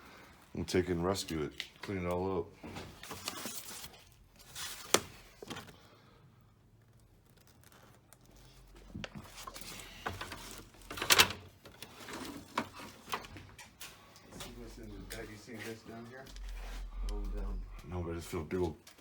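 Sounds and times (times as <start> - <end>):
papers rustling: 1.0 - 6.0.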